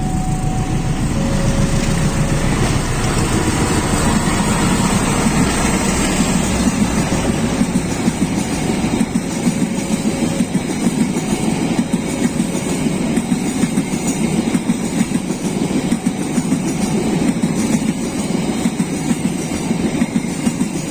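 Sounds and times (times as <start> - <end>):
train rumbling on rails: 0.0 - 20.9
wheels and carriages rattling: 0.0 - 20.9.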